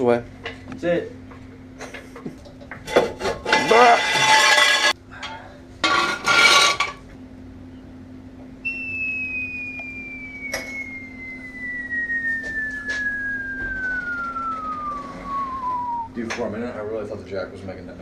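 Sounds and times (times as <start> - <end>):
high whistle sliding down in pitch: 8.6 - 16.3.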